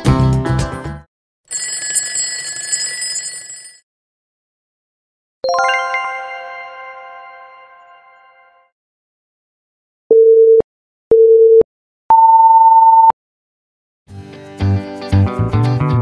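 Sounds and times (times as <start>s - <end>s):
background music: 0.0s - 1.0s, 5.5s - 8.6s, 14.1s - 16.0s.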